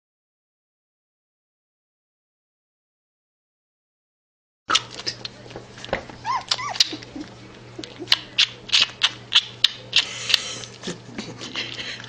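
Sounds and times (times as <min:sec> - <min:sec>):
dog yelping: 0:06.2 - 0:07.3
dog whimpering: 0:06.2 - 0:08.2.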